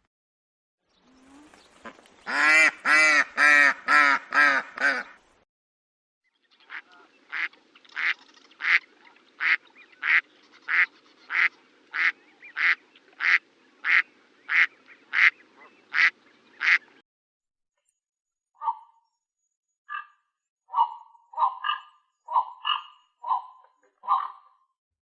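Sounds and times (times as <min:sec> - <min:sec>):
duck quacking: 0:01.8 - 0:05.2, 0:06.7 - 0:16.9.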